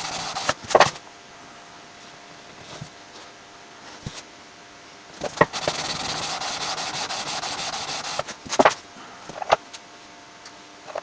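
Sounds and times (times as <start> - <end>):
sandpaper rubbing on wood: 0.0 - 0.6, 5.4 - 8.4.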